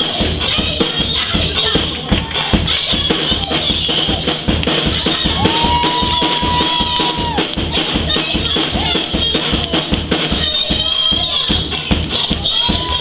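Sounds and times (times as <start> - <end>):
drum kit playing quick beat: 0.0 - 13.0.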